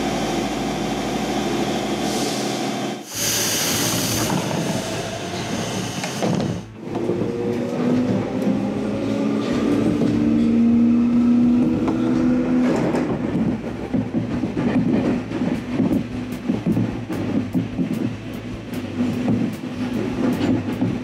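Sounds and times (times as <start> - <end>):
train motor hum: 0.0 - 21.0
train wheels clattering over rail joints: 11.7 - 21.0.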